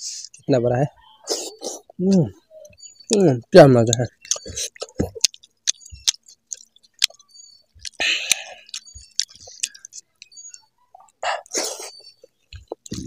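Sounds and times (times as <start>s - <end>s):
person chewing food: 1.2s - 13.0s
breathy bursts: 8.0s - 8.7s.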